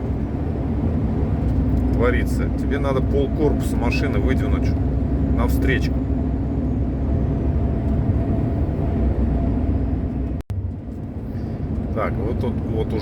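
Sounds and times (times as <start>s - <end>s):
truck engine and tyres droning: 0.0s - 13.0s.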